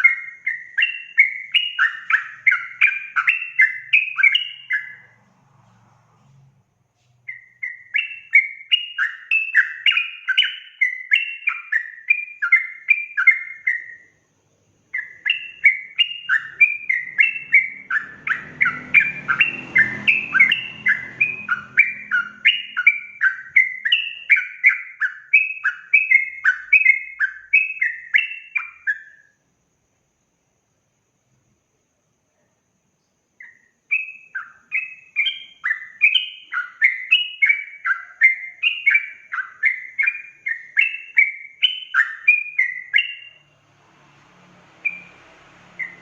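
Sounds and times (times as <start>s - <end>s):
faint low rumble: 4.5s - 7.8s.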